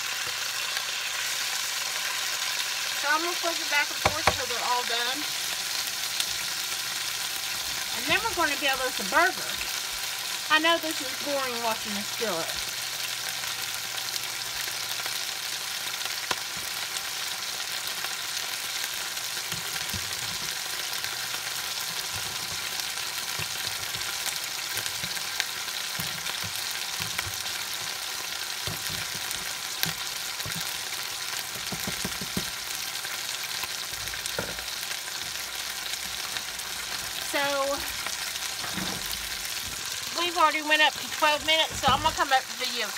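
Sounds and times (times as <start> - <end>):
patties sizzling in a skillet: 0.0 - 42.9.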